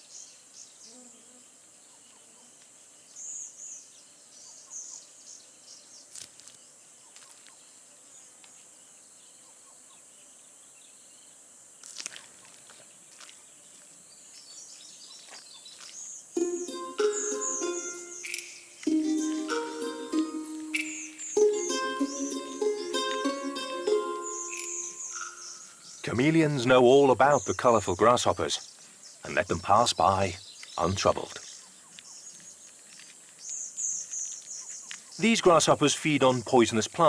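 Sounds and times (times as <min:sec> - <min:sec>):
insect chirps: 0:10.1 - 0:37.0
insects droning: 0:16.0 - 0:37.0.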